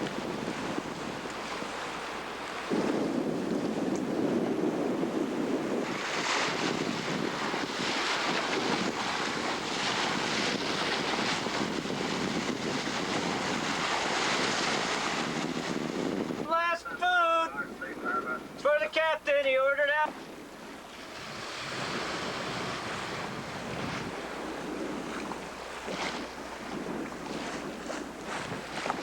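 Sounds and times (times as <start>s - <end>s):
water rushing along boat hull: 0.0s - 29.0s
wind buffeting microphone: 0.0s - 29.0s.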